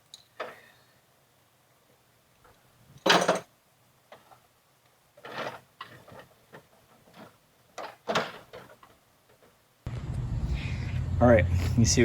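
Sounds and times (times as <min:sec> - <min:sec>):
knocks and clatters of metal parts: 0:02.9 - 0:04.5, 0:05.2 - 0:09.6.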